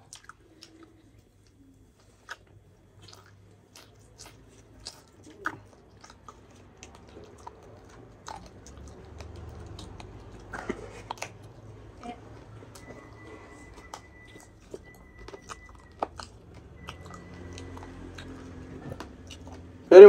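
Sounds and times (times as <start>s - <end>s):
low steady hum: 0.0s - 20.0s
man chewing food: 0.0s - 20.0s
mouth clicks: 12.7s - 19.9s.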